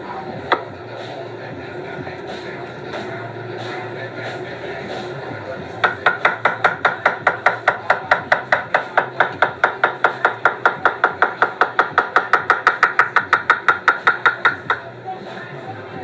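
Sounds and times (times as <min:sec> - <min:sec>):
knife chopping food: 0:00.5 - 0:00.7, 0:05.8 - 0:14.8.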